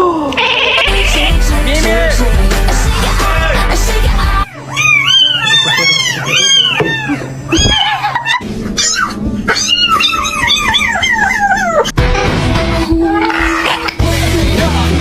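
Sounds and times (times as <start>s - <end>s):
cat meowing: 0.4s - 1.1s, 4.5s - 11.9s.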